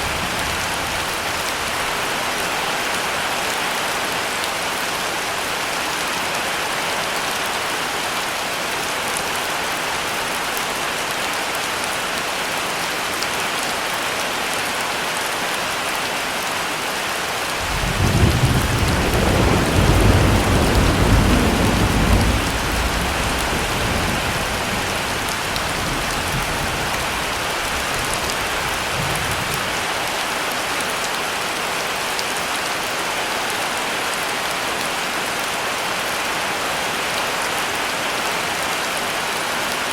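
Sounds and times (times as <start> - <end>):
heavy rain falling: 0.0 - 39.9
thunder rumbling: 17.6 - 29.6.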